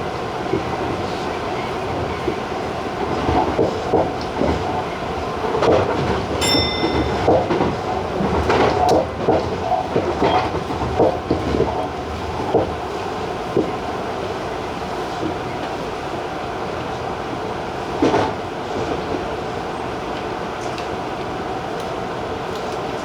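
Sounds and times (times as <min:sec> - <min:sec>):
train running rumble: 0:00.0 - 0:23.0
train wheels clattering over joints: 0:00.5 - 0:13.9.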